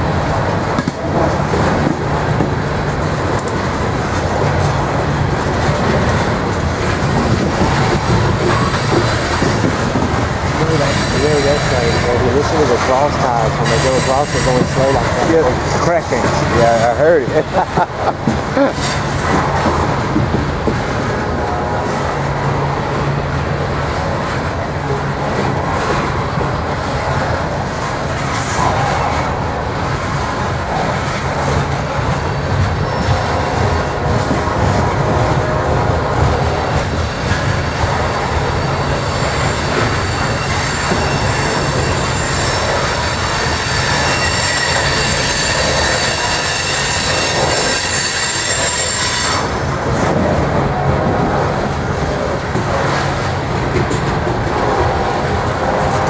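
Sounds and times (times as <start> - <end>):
train cars rumbling on rails: 0.0 - 56.0
metallic wheel squeal: 10.7 - 12.3, 38.6 - 49.5.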